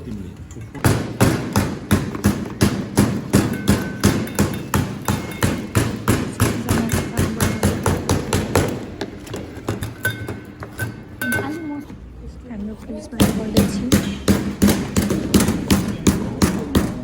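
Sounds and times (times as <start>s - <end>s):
meat mallet thudding on board: 0.8s - 9.1s, 13.2s - 17.0s.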